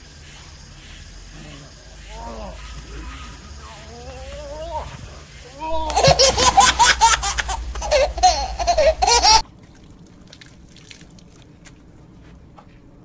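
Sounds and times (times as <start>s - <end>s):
high-pitched laughter: 2.1s - 9.4s.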